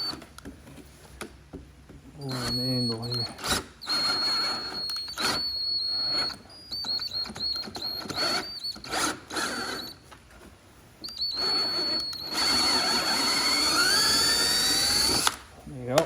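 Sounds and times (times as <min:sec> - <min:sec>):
electric drill motor whine: 0:02.2 - 0:10.0, 0:11.1 - 0:15.4.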